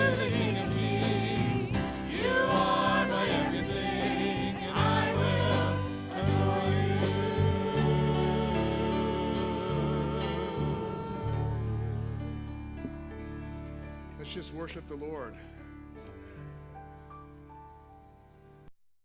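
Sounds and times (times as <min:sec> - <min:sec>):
voices singing: 0:00.0 - 0:12.3
instrumental accompaniment: 0:00.0 - 0:18.3.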